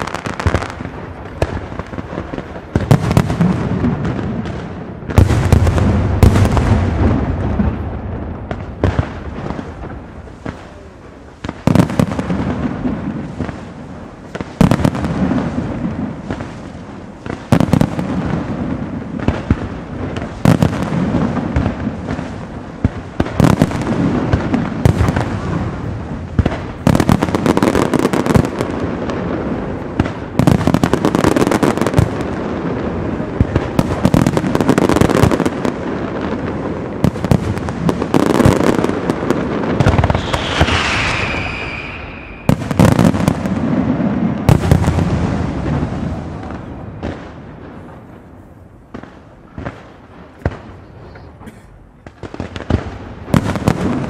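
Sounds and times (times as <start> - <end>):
fireworks bangs and crackling: 0.0 - 54.0
firework whistle falling in pitch: 40.1 - 42.7.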